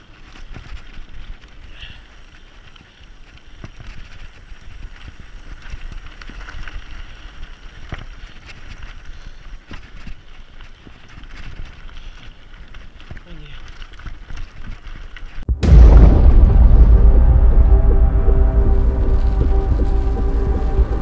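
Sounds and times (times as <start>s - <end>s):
bike rattling over bumps: 0.0s - 15.6s
wind on microphone: 15.5s - 21.0s.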